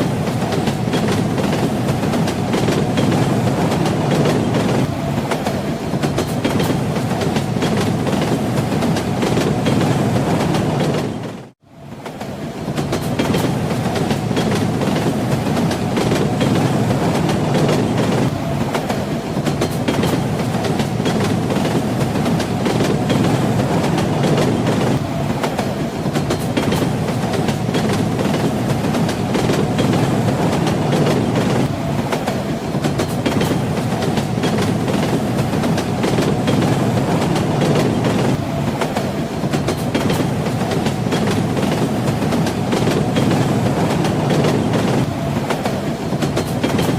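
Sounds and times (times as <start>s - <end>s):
train carriage rumble: 0.0s - 46.9s
train wheels clattering over joints: 12.2s - 46.9s.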